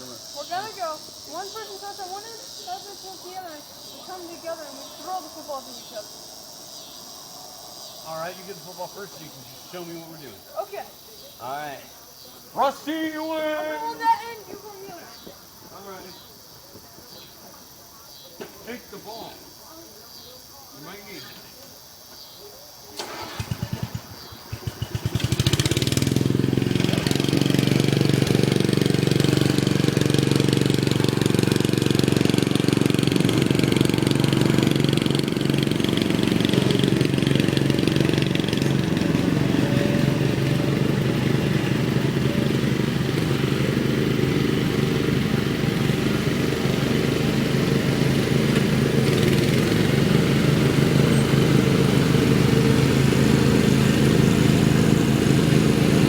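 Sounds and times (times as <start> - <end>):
lawn mower engine running: 0.0 - 6.6, 7.3 - 10.8, 12.4 - 17.4, 18.4 - 19.7, 22.9 - 56.0
lawn mower engine cranking: 22.9 - 56.0.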